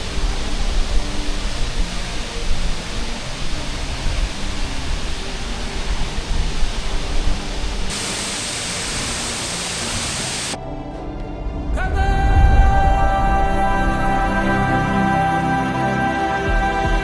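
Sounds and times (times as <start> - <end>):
waterfall rushing: 0.0 - 10.6
quiet music with held tones: 0.0 - 17.0.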